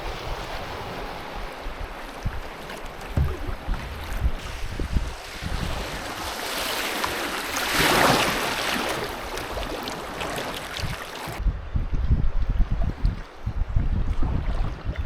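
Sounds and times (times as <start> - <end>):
rushing river water: 0.0 - 11.4.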